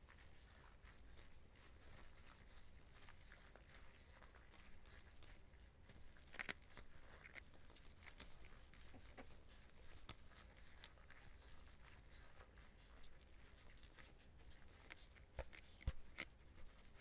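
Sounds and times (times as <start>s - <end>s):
hands kneading butter squelches: 0.0s - 17.0s.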